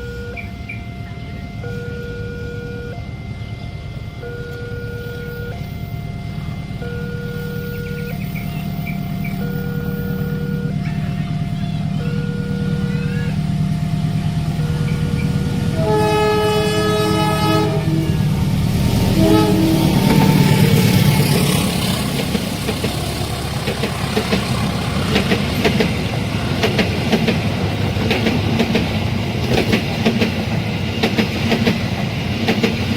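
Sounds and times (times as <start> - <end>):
level crossing two-tone alarm: 0.0 - 17.6
diesel locomotive rumble: 0.0 - 32.9
train horn: 9.4 - 22.3.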